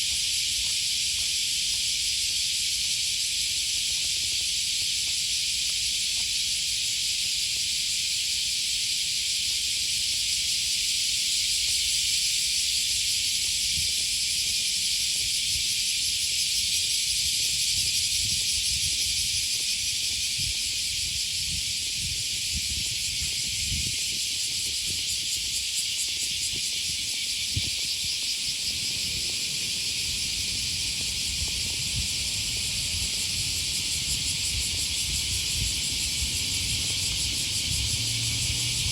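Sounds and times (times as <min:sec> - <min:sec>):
cicadas buzzing: 0:00.0 - 0:38.9
low irregular rumble: 0:28.5 - 0:38.0.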